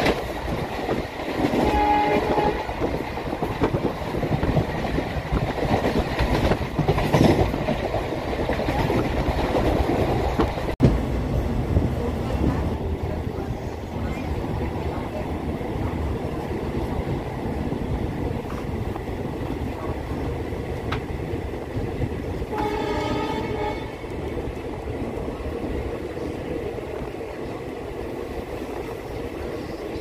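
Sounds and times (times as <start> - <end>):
train wheels rumbling on track: 0.0 - 30.0
train horn: 1.5 - 2.9, 22.5 - 24.1.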